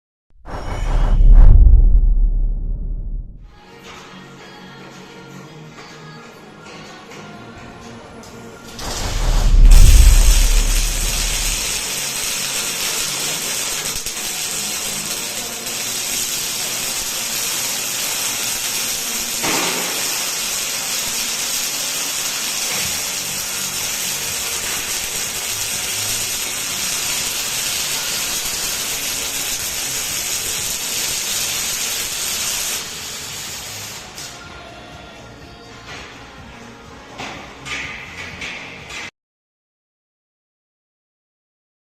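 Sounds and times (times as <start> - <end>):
welding arc crackling hiss: 8.7 - 34.5
welding arc snap: 8.8 - 34.4.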